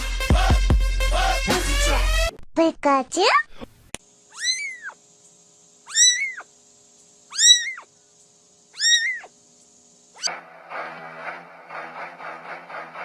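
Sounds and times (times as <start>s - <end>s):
cat meowing: 4.3s - 5.0s, 5.9s - 6.5s, 7.3s - 7.9s, 8.8s - 9.3s.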